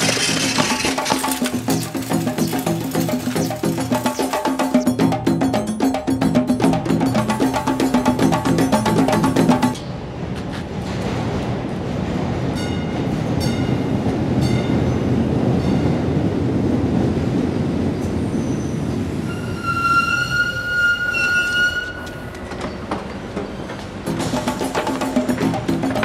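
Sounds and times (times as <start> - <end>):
electric train rumbling: 0.0 - 26.0
high steady brake squeal: 18.2 - 23.7.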